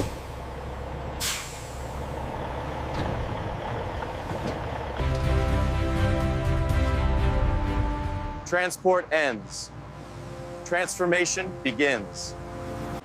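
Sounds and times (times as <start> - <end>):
truck engine idling: 0.0 - 13.0
air brakes hissing: 1.2 - 2.1
music: 5.0 - 8.5, 10.1 - 13.0.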